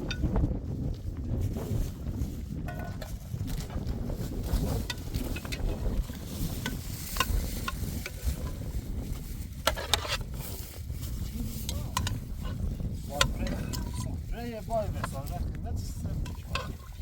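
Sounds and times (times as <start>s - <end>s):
wind rumbling on microphone: 0.0s - 17.0s
clicks and rustles: 2.6s - 10.6s.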